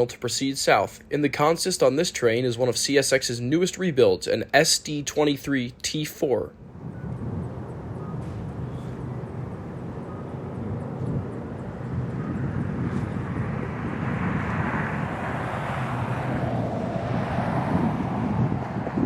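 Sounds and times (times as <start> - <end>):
locomotive engine drone: 6.5 - 19.0.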